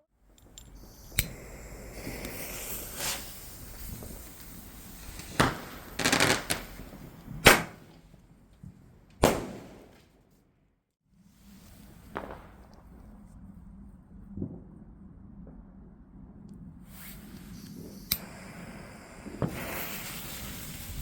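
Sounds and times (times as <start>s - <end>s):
fireworks crackling: 0.2s - 10.2s, 11.4s - 13.3s, 16.9s - 21.0s
fireworks bangs: 0.4s - 10.3s, 11.5s - 13.3s, 16.9s - 21.0s.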